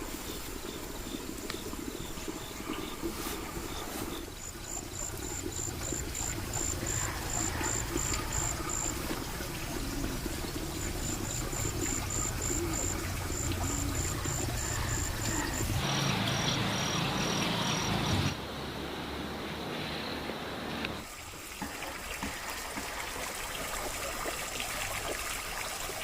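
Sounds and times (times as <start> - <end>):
insect chirping in pulses: 9.7 - 20.1.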